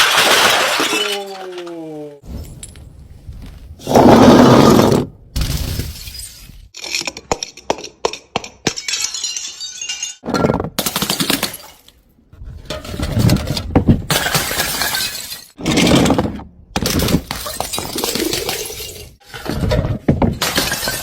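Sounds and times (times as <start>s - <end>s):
broken glass crunching and clinking: 0.0s - 1.8s, 5.7s - 10.2s, 14.1s - 16.0s, 20.4s - 21.0s
glass bottles smashing: 0.0s - 2.8s, 5.5s - 10.2s, 14.1s - 15.9s, 16.8s - 19.2s, 20.4s - 21.0s.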